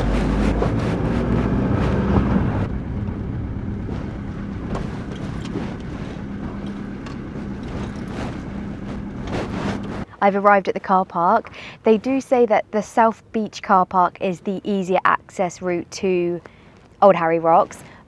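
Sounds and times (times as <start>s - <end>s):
vehicle engine hum: 0.0s - 10.2s
road noise: 0.0s - 12.5s.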